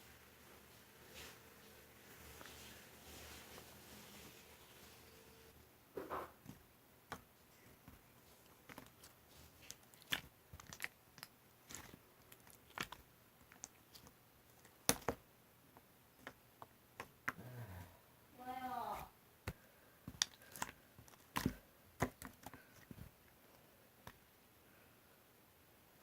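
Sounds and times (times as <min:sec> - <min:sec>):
small clicks and crunchy taps: 0:06.4 - 0:17.4, 0:19.4 - 0:24.2.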